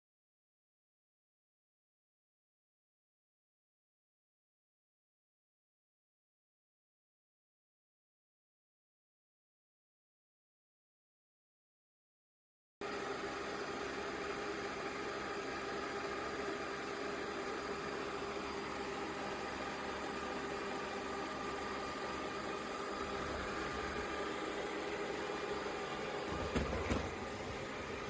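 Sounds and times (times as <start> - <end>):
robot vacuum motor whirring: 22.8 - 28.0.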